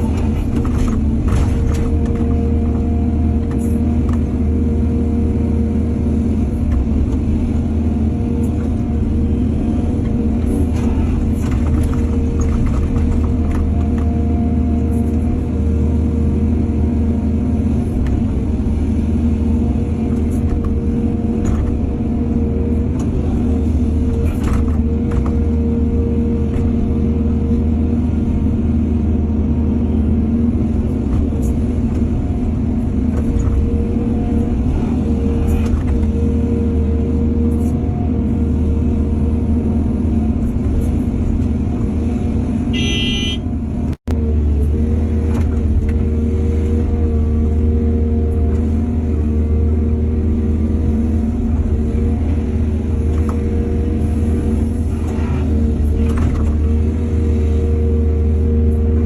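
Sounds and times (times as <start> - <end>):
digging knocks and clatters: 0.0 - 2.8
excavator diesel engine drone: 0.0 - 59.0.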